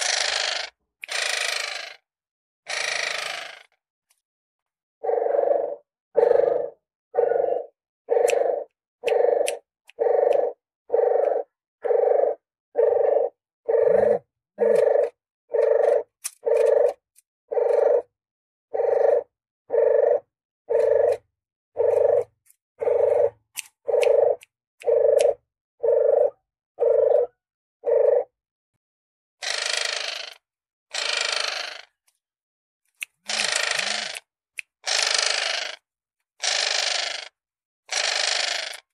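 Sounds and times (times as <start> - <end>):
dove cooing: 5.0 - 18.1, 18.7 - 21.2, 21.8 - 28.3.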